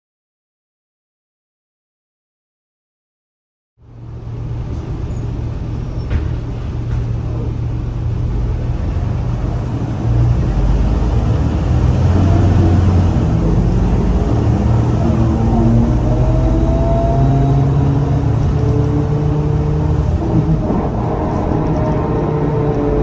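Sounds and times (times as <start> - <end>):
bus diesel engine pulling away: 3.9 - 23.0
rising whine: 8.1 - 23.0.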